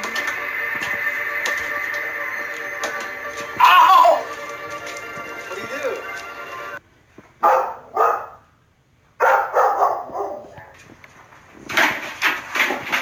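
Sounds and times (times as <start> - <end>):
dog barking: 7.4 - 8.5, 9.2 - 10.8.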